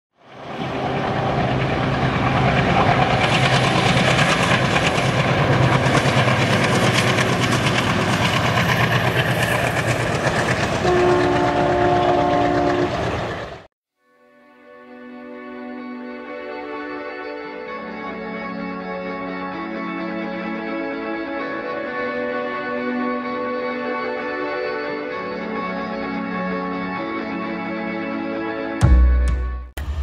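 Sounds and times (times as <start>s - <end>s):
train engine drone: 0.2s - 13.7s, 14.8s - 28.8s, 29.8s - 30.0s
train wheels clacking on rails: 0.7s - 13.7s
locomotive horn: 10.7s - 13.5s.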